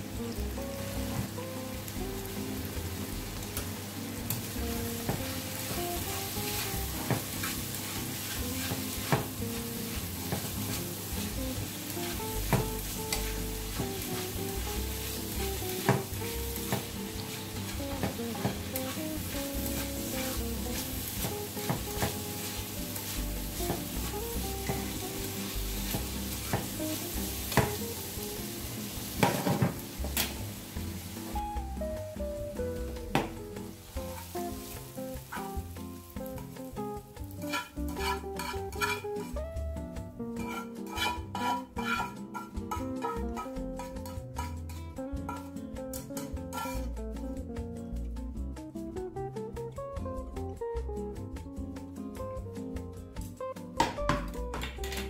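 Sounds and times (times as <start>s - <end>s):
food sizzling in a frying pan: 0.0s - 55.0s.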